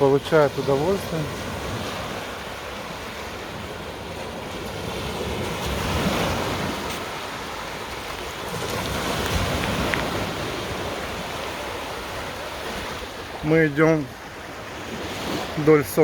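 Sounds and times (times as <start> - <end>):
small waves washing onto sand: 0.0 - 16.0.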